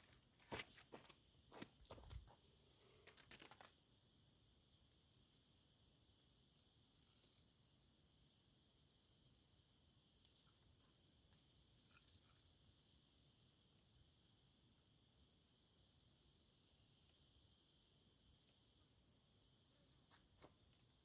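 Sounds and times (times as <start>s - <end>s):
faint knocks and rustles: 0.0s - 3.7s.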